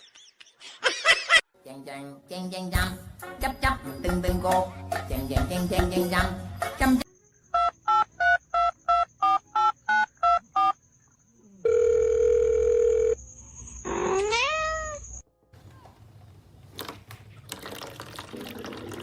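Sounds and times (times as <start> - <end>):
steady dial tone: 11.6 - 13.2
cat meowing: 14.0 - 15.2.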